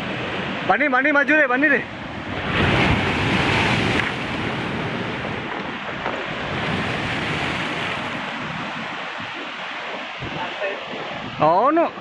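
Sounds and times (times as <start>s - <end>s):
surf breaking and washing: 0.0s - 12.0s
wind buffeting microphone: 1.7s - 12.0s.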